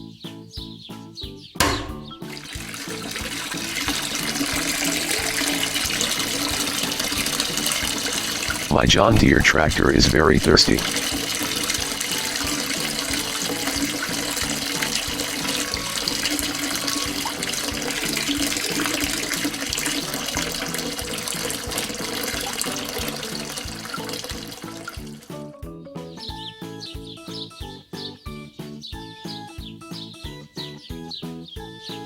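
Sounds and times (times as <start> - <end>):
background music: 0.0 - 32.0
liquid pouring: 1.6 - 25.4.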